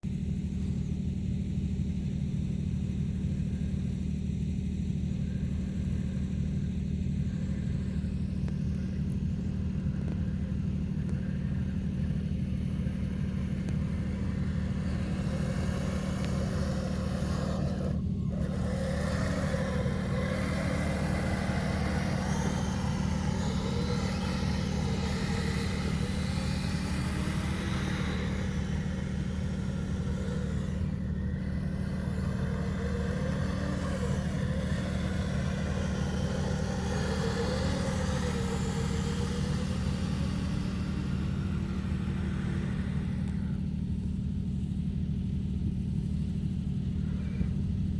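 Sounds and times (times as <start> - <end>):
steady low hum: 0.0 - 47.9
electric motor whining: 7.1 - 43.8.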